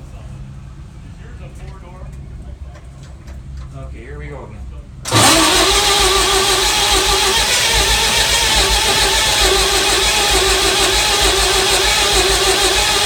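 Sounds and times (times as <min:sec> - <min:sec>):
diesel engine cranking: 0:05.1 - 0:13.0.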